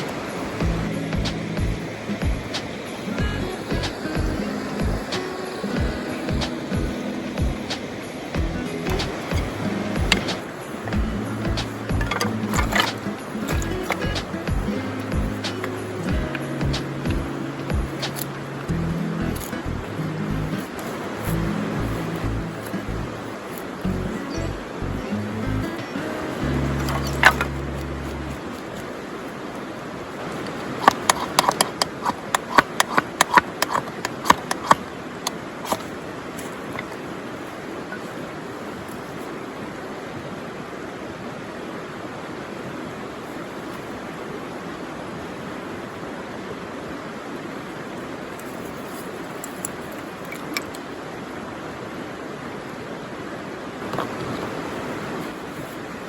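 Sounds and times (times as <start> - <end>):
steady rushing noise: 0.0 - 56.0
wood fire crackling and popping: 7.4 - 19.7.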